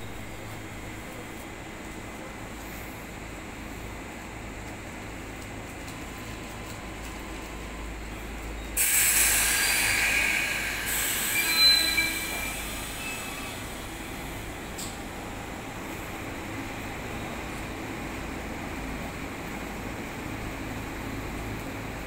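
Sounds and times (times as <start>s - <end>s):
electric train humming: 5.9s - 20.2s
compressed air hiss: 8.8s - 13.5s
high squealing tones: 9.1s - 13.6s.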